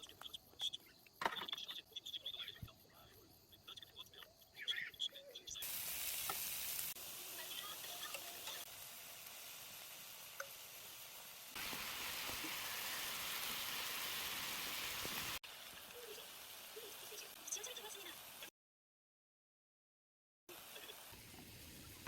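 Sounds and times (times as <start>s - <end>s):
food sizzling in a pan: 5.6s - 18.5s, 20.5s - 22.0s.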